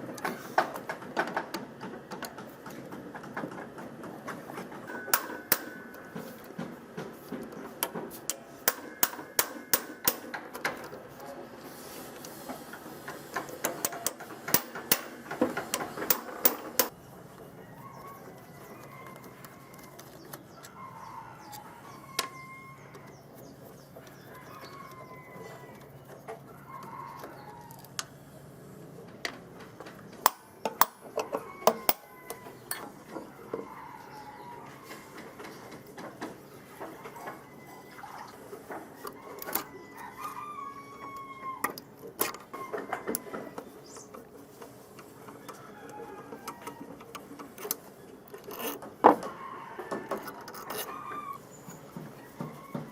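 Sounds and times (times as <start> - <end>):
chickens clucking: 30.0 - 48.2.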